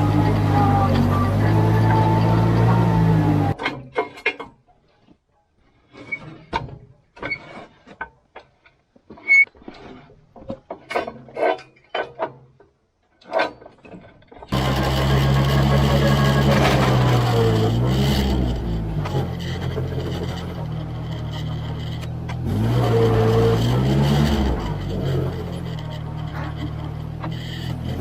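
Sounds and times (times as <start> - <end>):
tractor engine running: 0.0 - 3.6, 14.5 - 28.0
knocks clicks and rattles: 13.4 - 28.0.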